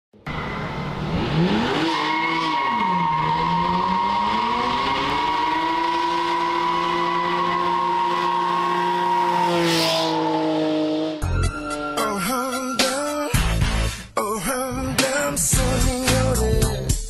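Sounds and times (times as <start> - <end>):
car engine revving hard: 0.9 - 11.2
tyres skidding on dirt: 1.2 - 11.0.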